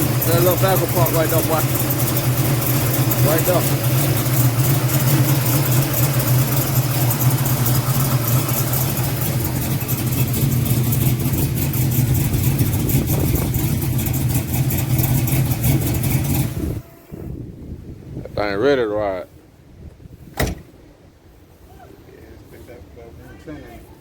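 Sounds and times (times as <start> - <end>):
car engine idling: 0.0 - 17.3.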